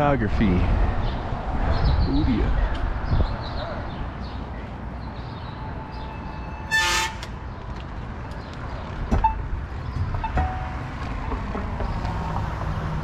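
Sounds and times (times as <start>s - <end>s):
bicycle road rumble: 0.0s - 13.0s
wind: 0.0s - 13.0s
horn toot: 6.2s - 7.3s.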